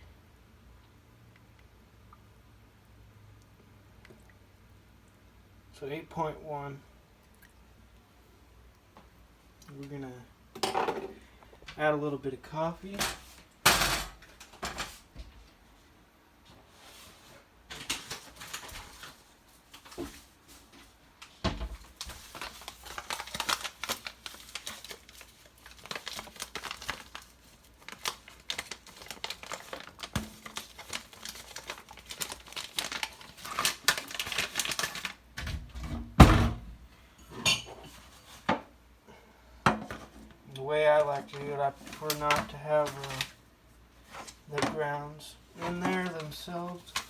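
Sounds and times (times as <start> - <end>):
coffee packaging crinkling: 17.7 - 35.2, 41.0 - 43.4, 45.5 - 47.0.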